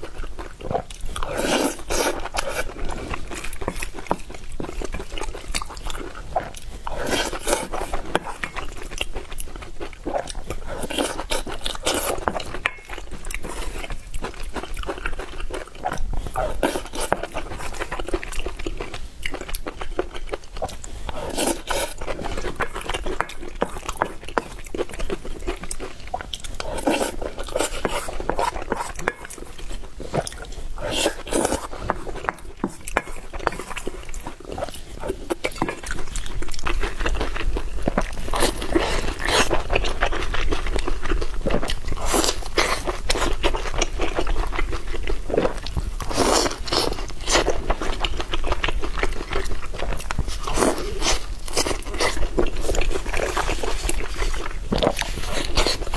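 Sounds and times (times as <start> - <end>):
person chewing noodles: 0.0 - 55.9
noodle slurps: 0.7 - 3.2, 21.0 - 22.8, 26.2 - 29.1, 30.0 - 32.2.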